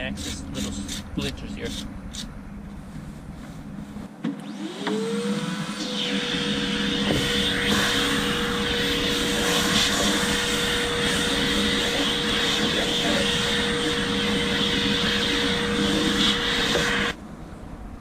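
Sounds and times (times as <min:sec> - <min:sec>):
power tool motor whining: 0:04.3 - 0:17.2.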